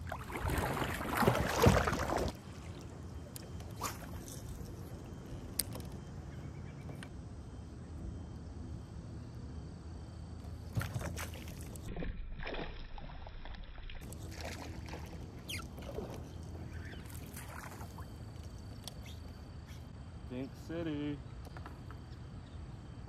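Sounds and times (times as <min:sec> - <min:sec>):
water splashing: 0:00.0 - 0:03.0, 0:10.6 - 0:18.9.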